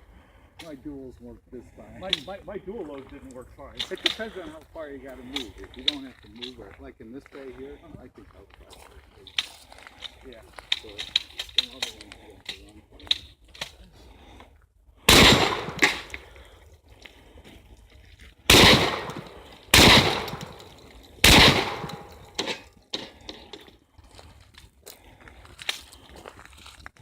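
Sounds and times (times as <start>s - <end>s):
shotgun shots with echo: 15.1s - 16.2s, 18.5s - 22.6s.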